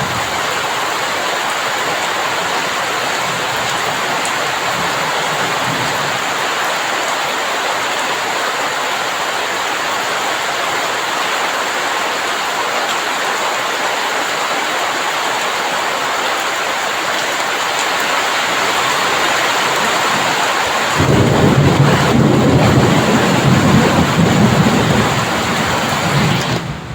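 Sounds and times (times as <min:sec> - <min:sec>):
heavy rain: 0:00.0 - 0:26.9
thunder rumbling: 0:18.4 - 0:26.9.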